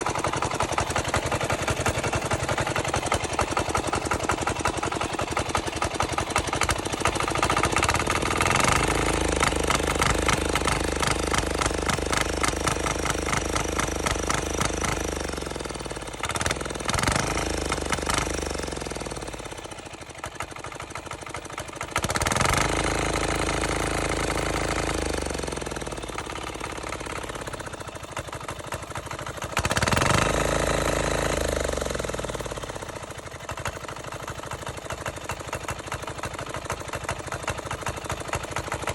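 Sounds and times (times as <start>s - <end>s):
diesel engine revving: 6.2s - 19.5s, 22.0s - 27.5s, 29.6s - 32.9s.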